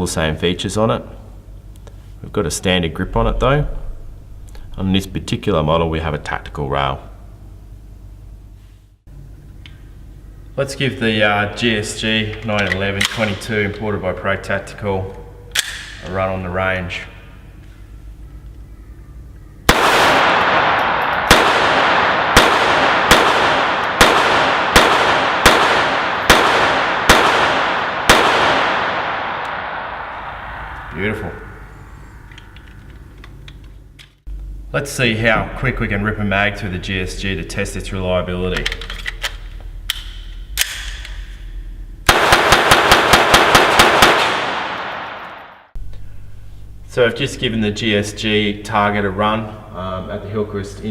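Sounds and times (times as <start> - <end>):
pistol shots echoing: 19.7 - 31.9, 42.1 - 45.6.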